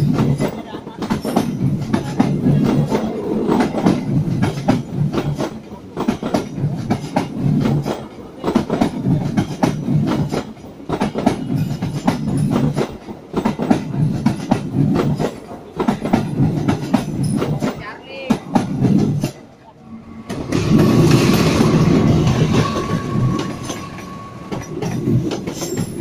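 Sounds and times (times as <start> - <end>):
low train rumble: 0.0 - 26.0
train wheels clacking on rail joints: 0.0 - 26.0.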